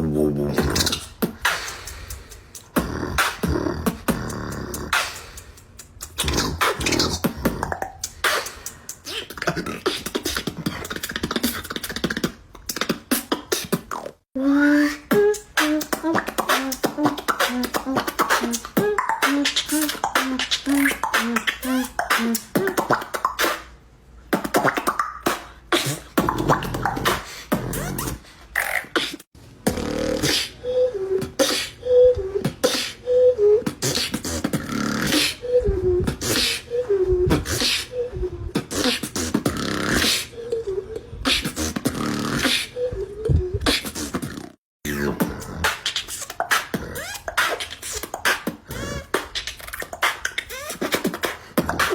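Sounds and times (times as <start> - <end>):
beatboxing: 0.0 - 51.9
hummed melody: 14.4 - 23.1, 30.3 - 43.7.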